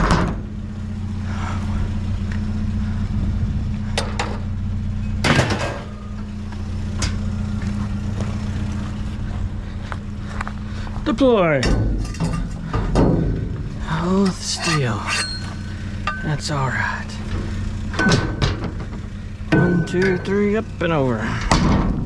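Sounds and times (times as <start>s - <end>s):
vehicle engine idling: 0.0s - 22.0s
sharp clicks and knocks: 11.6s - 13.7s, 17.3s - 20.5s.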